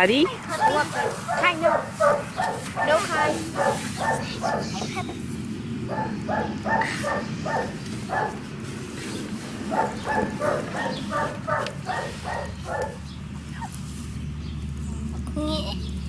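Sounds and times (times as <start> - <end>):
dog barking quickly: 0.5 - 4.8, 5.8 - 8.4, 9.6 - 13.7.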